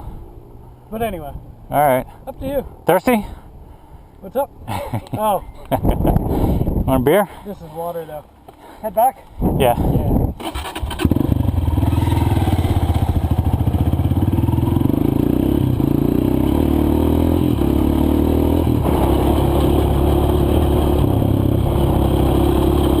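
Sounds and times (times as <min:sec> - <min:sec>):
dirt bike engine running: 0:10.9 - 0:23.0.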